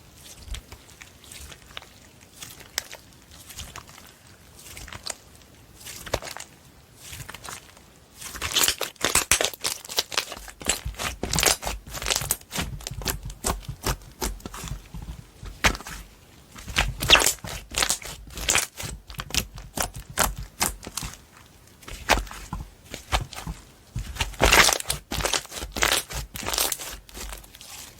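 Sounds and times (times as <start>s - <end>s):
slime squeezed by hand crackling: 8.2s - 21.3s, 21.9s - 27.9s.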